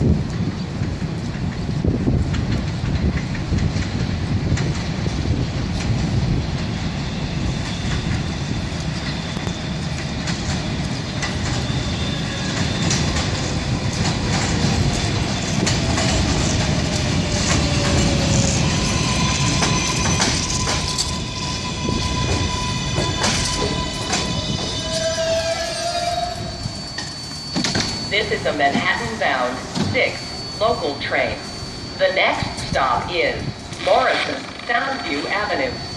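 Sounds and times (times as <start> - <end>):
subway train rumble: 0.0 - 35.9
wheels clicking over rail joints: 8.8 - 11.8, 12.4 - 21.3
steady high tone: 11.5 - 35.9.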